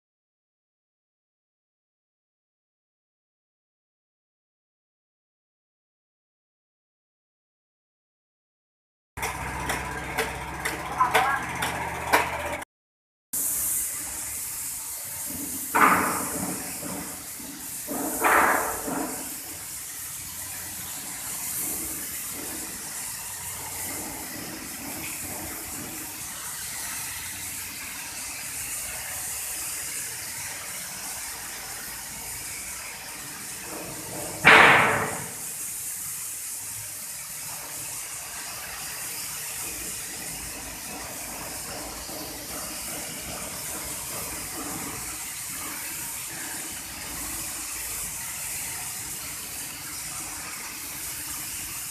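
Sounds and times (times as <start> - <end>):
paint sprayer hissing: 13.4 - 51.9.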